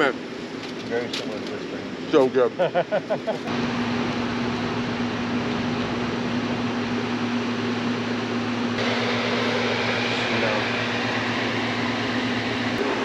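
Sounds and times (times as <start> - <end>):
fan-like rushing noise: 3.4 - 13.0
low hum: 3.4 - 13.0.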